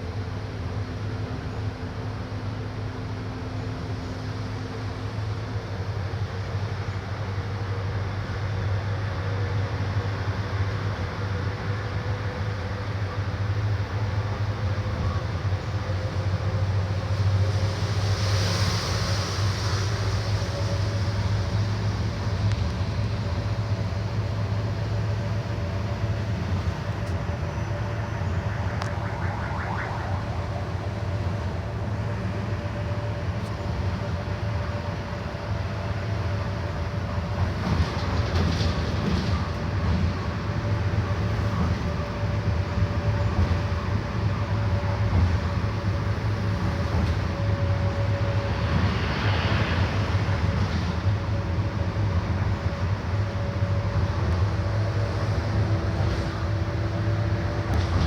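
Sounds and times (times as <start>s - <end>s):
bus engine droning: 0.0s - 58.0s
steady whine: 25.5s - 34.2s.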